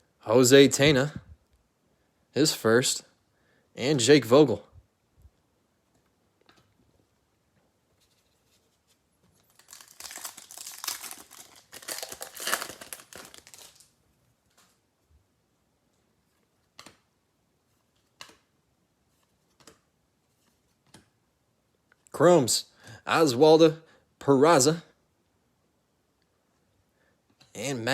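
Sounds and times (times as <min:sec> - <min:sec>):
wrapper tearing and crinkling: 0:09.4 - 0:14.0.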